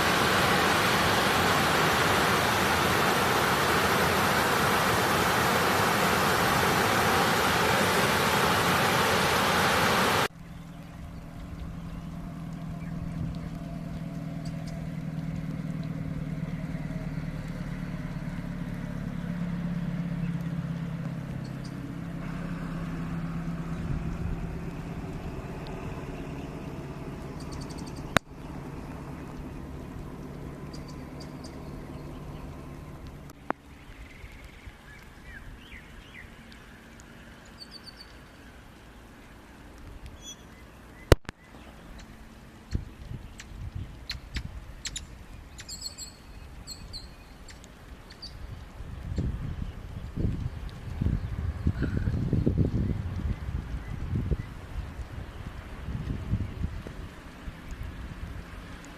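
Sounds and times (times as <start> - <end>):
rushing water hiss: 0.0 - 58.9
vehicle engine hum: 0.0 - 58.9
bird chirps: 27.3 - 28.6, 30.6 - 32.6, 40.2 - 48.5.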